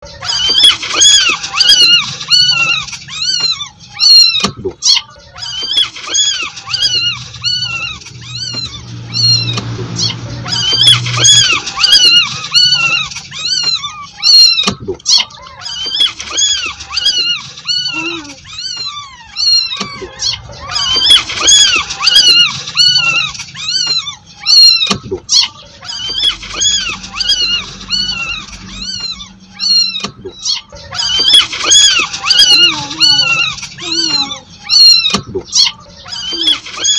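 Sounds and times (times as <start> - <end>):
kitten mewing: 15.9 - 24.9.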